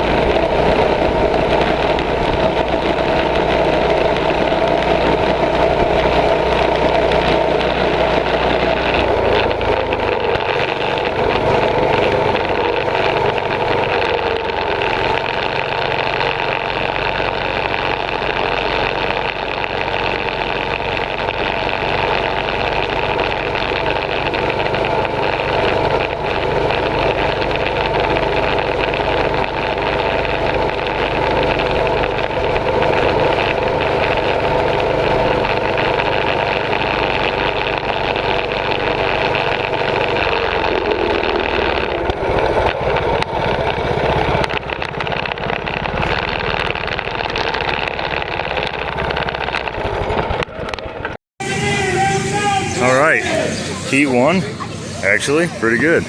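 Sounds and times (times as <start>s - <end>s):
mini bike engines running: 0.0s - 56.0s.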